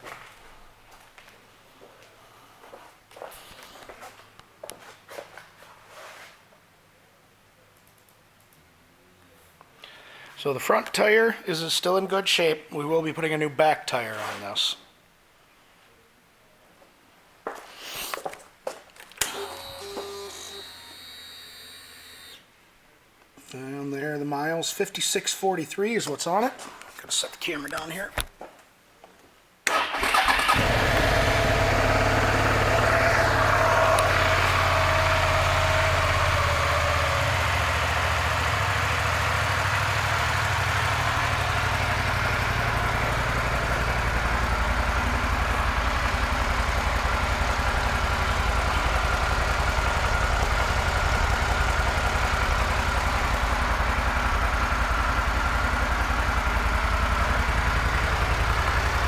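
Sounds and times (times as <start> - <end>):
motorcycle engine starting: 29.7 - 59.0
motorcycle engine idling: 30.2 - 59.0.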